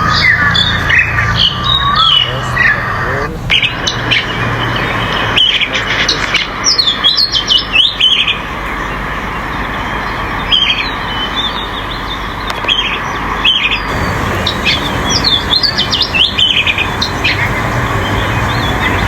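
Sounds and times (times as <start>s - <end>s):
small birds chirping: 0.0s - 19.0s
steady background noise: 0.0s - 19.0s.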